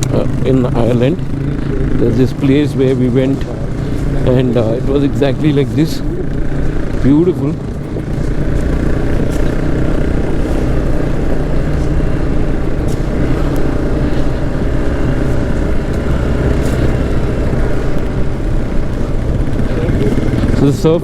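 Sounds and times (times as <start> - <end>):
motorcycle engine running: 0.0 - 21.0
rushing wind: 7.6 - 20.6.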